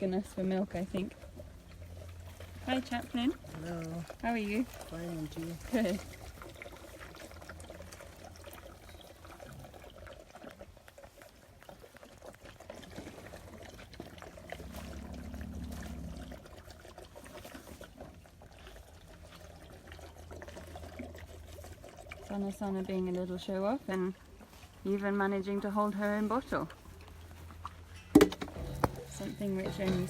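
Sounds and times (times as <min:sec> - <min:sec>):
low steady hum: 0:12.6 - 0:30.0.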